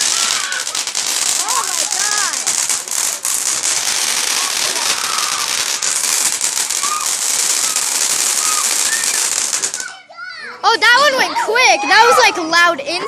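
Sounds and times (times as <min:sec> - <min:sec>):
firework crackling pops: 0:00.0 - 0:10.0
firework hiss: 0:00.0 - 0:10.0.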